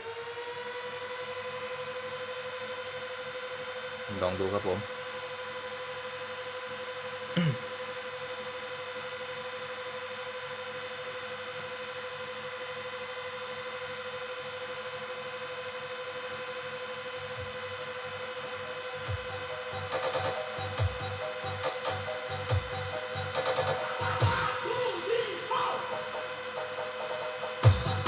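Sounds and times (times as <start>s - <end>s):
amplifier hum and whine: 0.0s - 28.0s.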